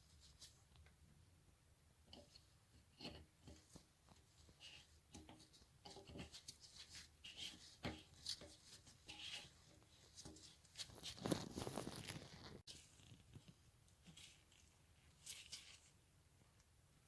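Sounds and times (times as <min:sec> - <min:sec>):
small objects clicking and rubbing: 0:10.2 - 0:13.4.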